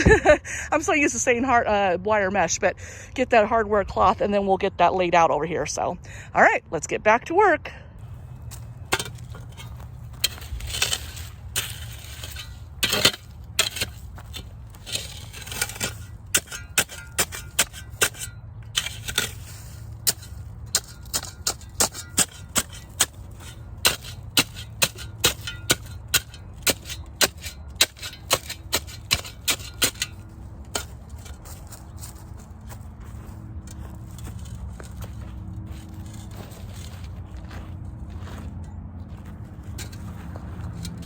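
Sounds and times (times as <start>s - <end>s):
short scraping sounds: 8.0s - 32.8s.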